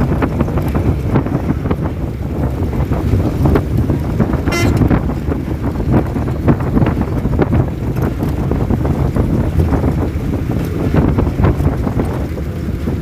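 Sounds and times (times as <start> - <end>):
moving vehicle rumble: 0.0 - 13.0
wind buffeting microphone: 0.0 - 13.0
short horn toot: 4.5 - 4.9.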